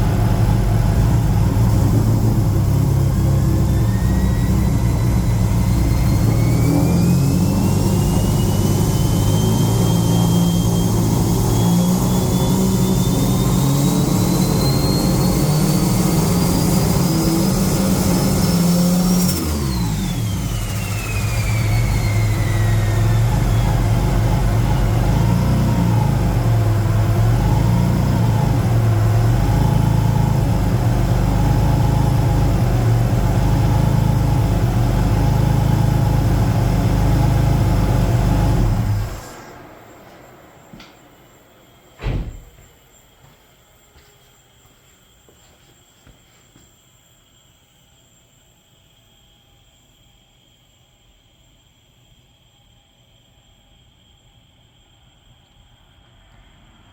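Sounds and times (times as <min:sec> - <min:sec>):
car engine revving: 0:00.0 - 0:39.6
engine idling: 0:00.0 - 0:42.6
turbo whine: 0:00.0 - 0:56.9.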